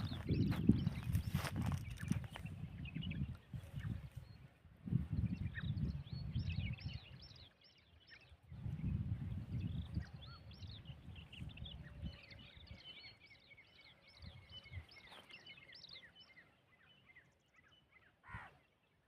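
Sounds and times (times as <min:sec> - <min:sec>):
wind rumble on microphone: 0:00.0 - 0:15.2
small birds chirping: 0:00.0 - 0:19.0.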